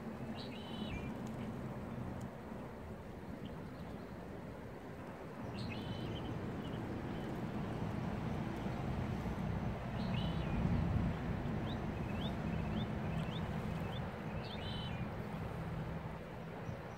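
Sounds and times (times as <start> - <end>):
small birds chirping: 5.5 - 7.5, 9.9 - 10.7, 11.6 - 15.1.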